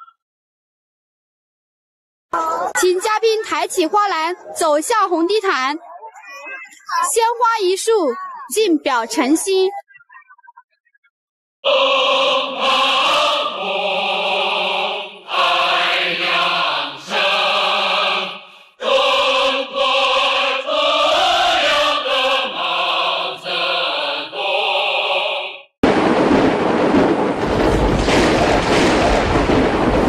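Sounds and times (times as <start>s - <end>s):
choir singing: 11.6s - 25.7s.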